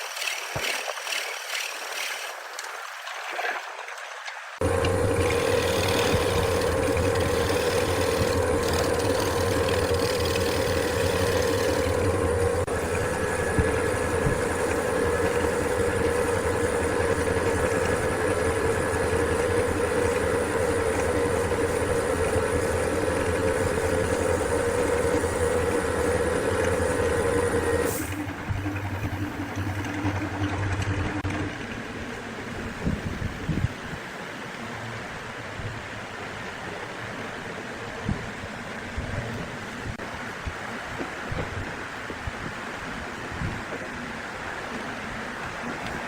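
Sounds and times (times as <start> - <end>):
wood lathe motor hum: 4.6 - 31.7.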